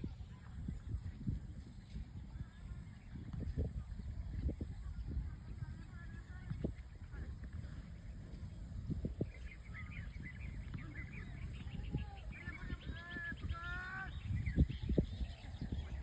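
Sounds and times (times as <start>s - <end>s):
birds calling: 4.0s - 16.0s.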